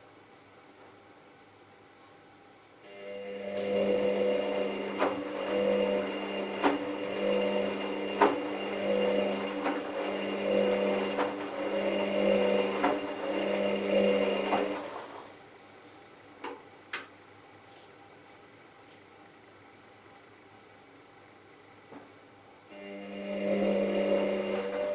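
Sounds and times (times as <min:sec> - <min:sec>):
washing machine drum motor humming: 0:03.2 - 0:15.4, 0:22.8 - 0:24.9.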